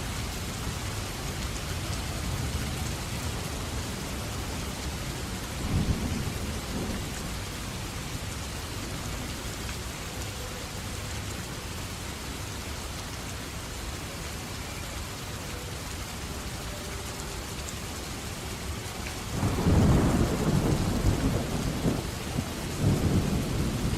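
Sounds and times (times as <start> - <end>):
heavy rain falling: 0.0 - 23.9
thunder rumble: 19.3 - 23.9.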